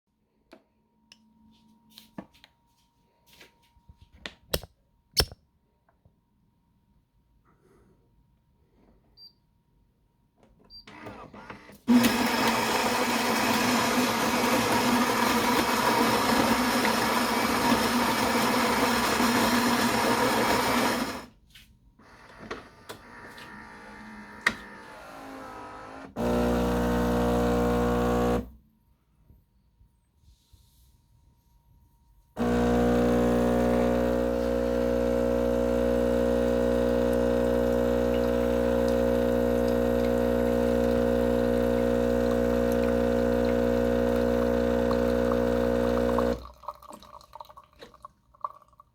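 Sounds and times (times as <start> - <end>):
coffee machine grinding beans: 11.8 - 21.3, 23.3 - 28.5, 32.4 - 46.5
pump buzzing: 11.9 - 21.3, 23.3 - 28.6, 32.4 - 46.4
brew unit clicking and whirring: 22.2 - 28.5, 32.4 - 46.4.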